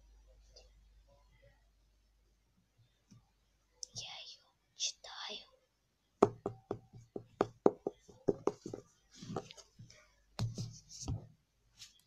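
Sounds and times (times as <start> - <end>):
fingers tapping on a book: 6.2 - 9.6
soft brushing: 8.1 - 12.0.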